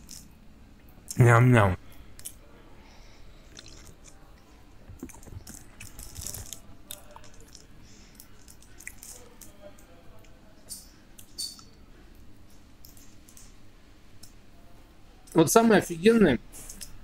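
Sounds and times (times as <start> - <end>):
man chewing with wet smacks: 0.0 - 0.3, 3.4 - 9.5.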